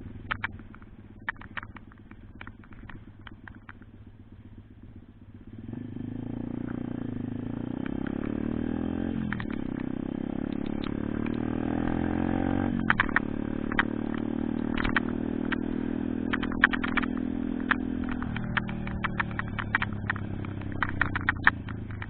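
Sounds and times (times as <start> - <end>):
pitbike engine accelerating: 0.0 - 22.0
sharp clicks: 0.2 - 4.0, 7.7 - 8.5, 9.2 - 22.0.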